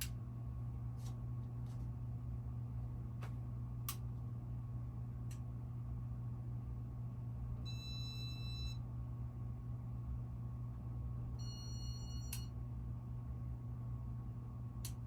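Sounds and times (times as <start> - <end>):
fan motor hum: 0.0 - 15.0
click: 14.8 - 15.0.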